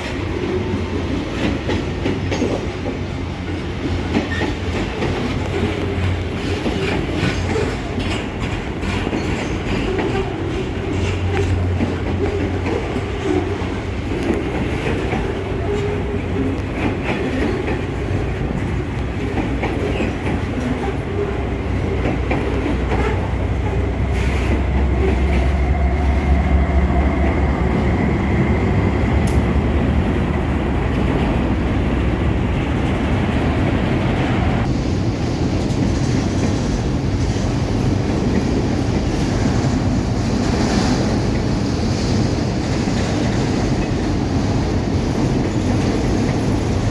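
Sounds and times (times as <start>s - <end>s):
freight train rumbling past: 0.0s - 46.9s
wheels clicking over rail joints: 1.4s - 28.0s.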